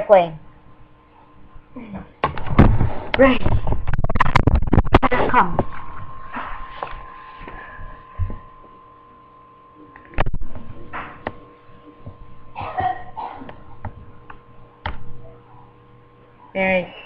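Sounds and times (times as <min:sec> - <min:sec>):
knocks and thumps: 0:02.2 - 0:06.5.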